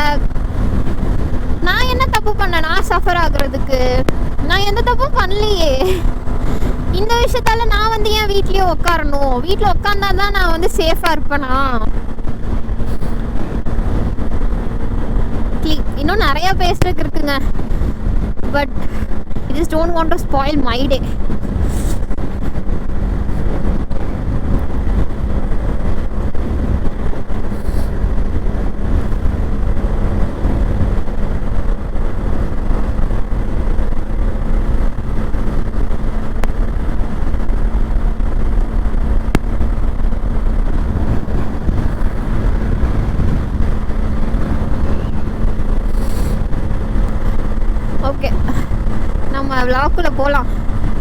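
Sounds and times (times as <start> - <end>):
motorcycle engine hum: 0.0 - 51.0
wind rush on microphone: 0.0 - 51.0.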